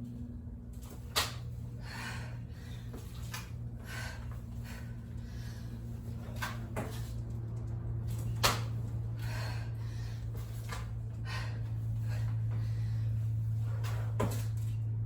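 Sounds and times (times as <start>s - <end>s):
steady low hum: 0.0s - 15.0s
short hard breaths: 9.1s - 14.0s.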